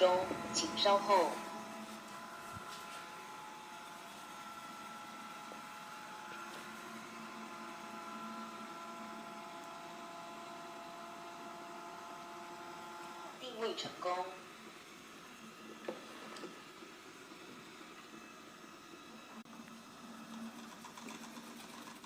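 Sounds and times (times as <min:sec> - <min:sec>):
robot vacuum whirring: 0:00.0 - 0:19.4
motor whining tones: 0:00.0 - 0:20.5.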